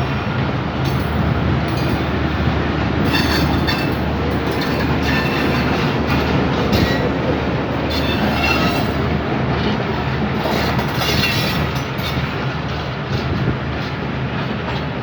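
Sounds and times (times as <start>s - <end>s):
train wheels rumbling on track: 0.0s - 15.0s
wheels squealing against rail: 3.0s - 12.4s.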